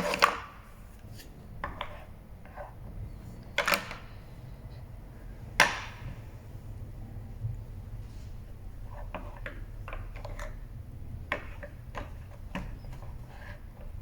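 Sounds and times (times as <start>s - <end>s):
toy figures knocking and clattering: 8.9s - 14.0s.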